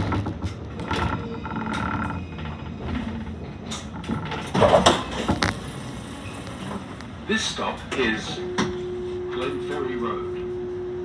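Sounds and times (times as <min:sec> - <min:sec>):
rattles and knocks: 0:00.0 - 0:05.5
tram running on rails: 0:00.0 - 0:11.0.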